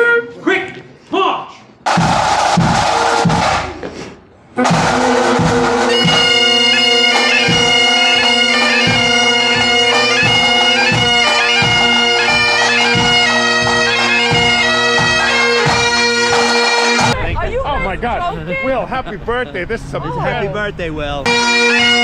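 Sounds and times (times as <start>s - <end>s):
drum beats: 1.8s - 20.2s
bagpipe chanters playing tune: 4.6s - 19.1s, 21.2s - 22.0s
bagpipe drones: 4.6s - 22.0s.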